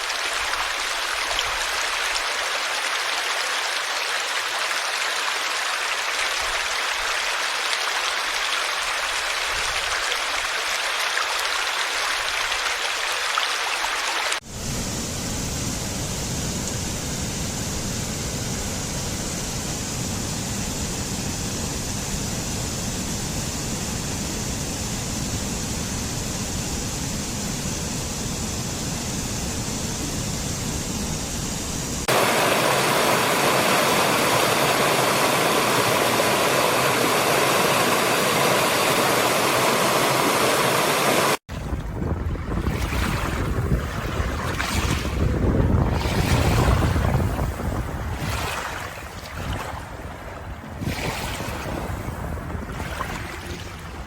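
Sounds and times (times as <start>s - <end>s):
flowing water rushing: 0.0s - 14.5s, 32.0s - 54.0s.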